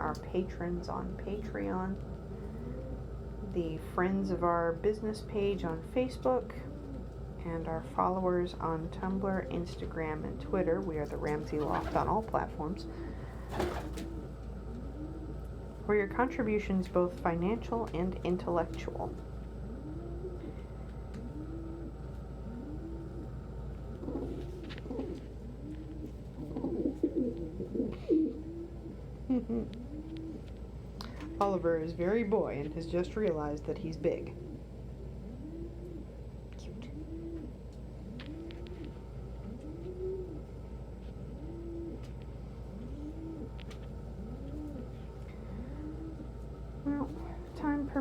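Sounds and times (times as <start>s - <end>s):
pigeon cooing: 2.2s - 3.8s, 6.5s - 7.2s, 11.2s - 16.5s, 18.6s - 31.8s, 34.1s - 48.0s.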